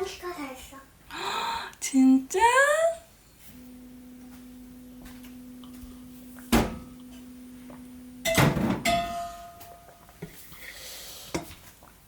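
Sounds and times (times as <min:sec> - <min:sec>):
kitchen appliance humming: 0:03.4 - 0:09.0.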